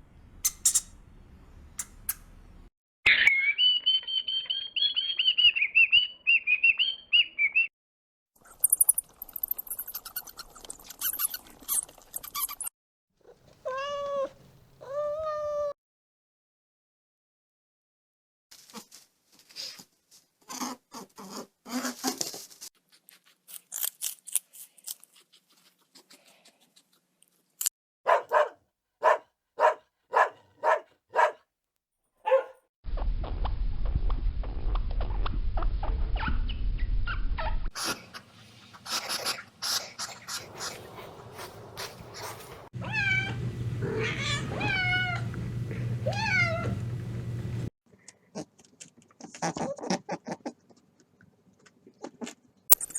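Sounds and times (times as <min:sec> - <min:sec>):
animal calls and clicks: 0:00.4 - 0:01.0, 0:01.8 - 0:02.3, 0:08.4 - 0:12.7.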